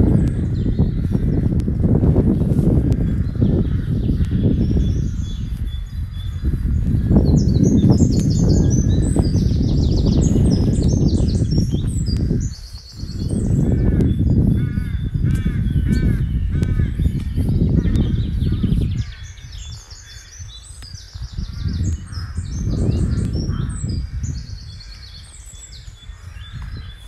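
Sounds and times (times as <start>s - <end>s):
loud low rumbling: 0.0s - 19.4s
woodland birds singing: 0.0s - 27.0s.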